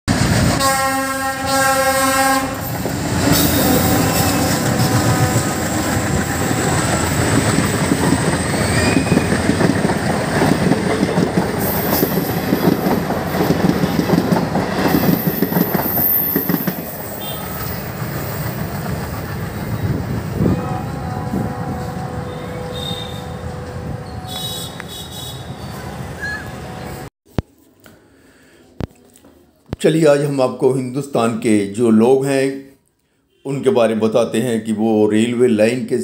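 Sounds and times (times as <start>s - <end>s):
train rattling past: 0.1s - 27.1s
locomotive horn blast: 0.6s - 2.7s, 3.3s - 6.9s, 17.2s - 17.6s, 20.4s - 27.1s
wheels clacking over rail joints: 2.6s - 20.2s.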